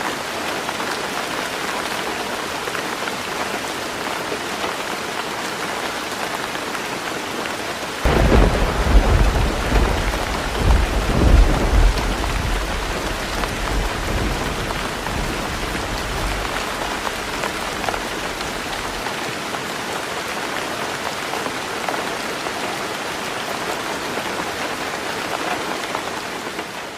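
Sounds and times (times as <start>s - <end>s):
heavy rain on a tin roof: 0.0s - 26.9s
thunderclap rumbling: 8.1s - 19.0s.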